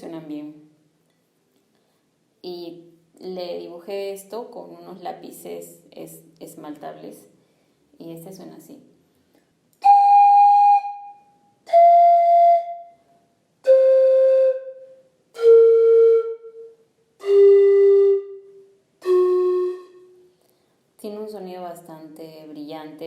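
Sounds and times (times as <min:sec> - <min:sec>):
breathy panpipe notes: 0:09.8 - 0:20.5.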